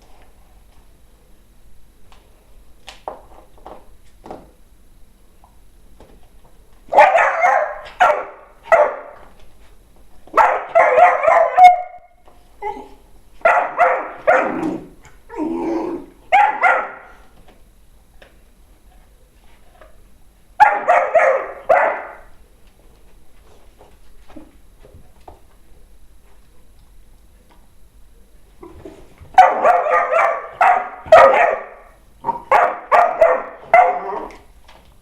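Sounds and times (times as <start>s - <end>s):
dogs barking: 6.9s - 9.2s, 10.3s - 12.1s, 13.4s - 14.9s, 16.3s - 17.2s, 20.6s - 22.3s, 29.4s - 34.4s.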